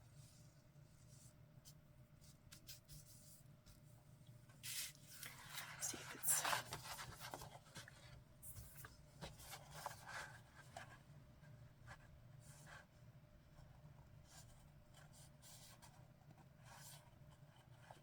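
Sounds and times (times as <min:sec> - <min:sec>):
paper rustling: 0:04.6 - 0:10.0
scratching on paper: 0:04.6 - 0:11.0, 0:13.6 - 0:18.0.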